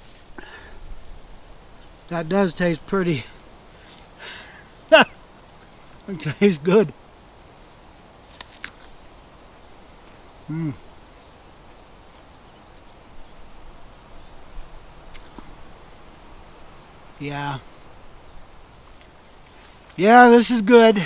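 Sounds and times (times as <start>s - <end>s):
man humming: 10.5s - 10.8s.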